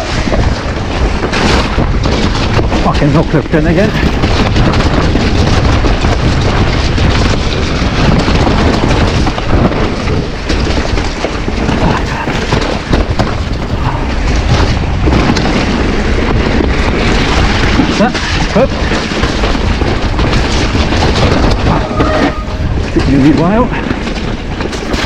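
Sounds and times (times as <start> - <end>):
bike tyres rolling on rough trail: 0.0 - 25.0
wind buffeting microphone: 0.0 - 25.0.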